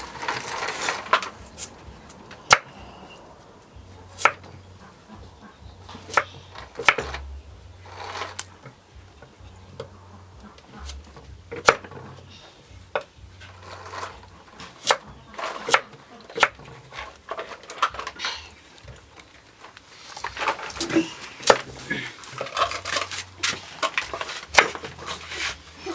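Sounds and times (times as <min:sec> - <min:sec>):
soft scraping: 0:07.8 - 0:09.0, 0:13.4 - 0:14.8, 0:19.5 - 0:25.9
dishes being handled: 0:13.0 - 0:25.9.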